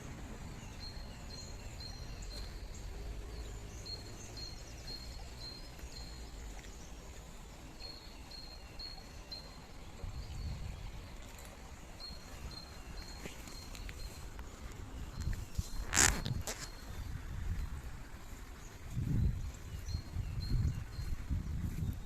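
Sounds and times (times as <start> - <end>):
low outdoor rumble: 0.0 - 8.5.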